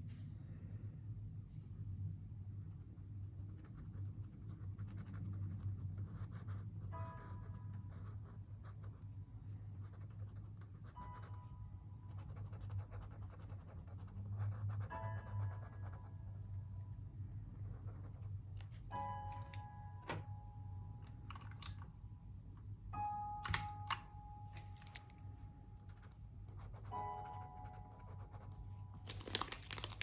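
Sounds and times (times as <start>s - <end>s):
soft background music: 0.8s - 30.0s
pen scratching on paper: 3.4s - 9.1s, 9.8s - 11.5s, 12.1s - 16.2s
paper rustling: 29.0s - 30.0s.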